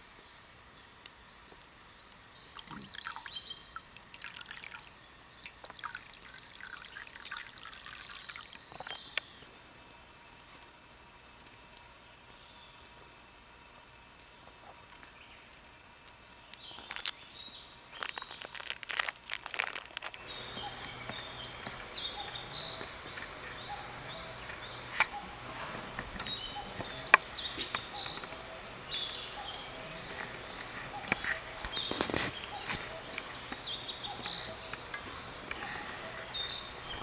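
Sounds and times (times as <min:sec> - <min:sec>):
small birds chirping: 0:00.0 - 0:10.2, 0:14.2 - 0:37.0
rustling handling noises: 0:17.9 - 0:37.0.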